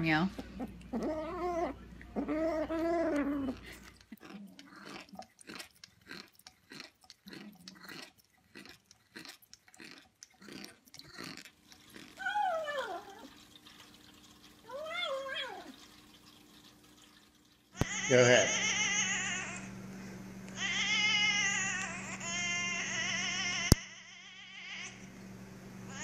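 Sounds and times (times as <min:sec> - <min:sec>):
cat chewing clicks: 0:03.9 - 0:12.2
cat meowing: 0:20.6 - 0:25.0.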